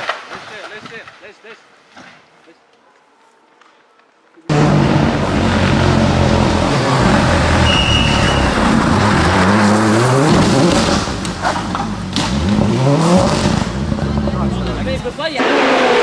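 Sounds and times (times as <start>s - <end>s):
rally car engine revving: 4.5s - 16.0s
high squeal: 7.4s - 9.2s.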